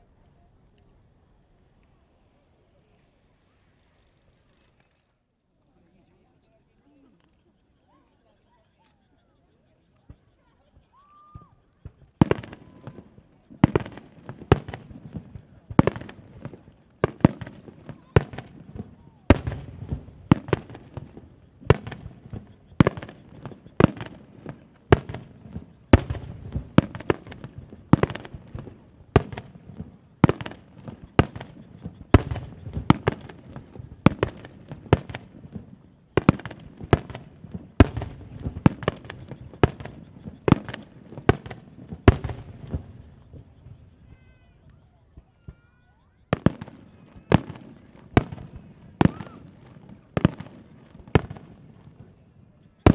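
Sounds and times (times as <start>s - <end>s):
firework shells bursting: 11.8s - 52.9s.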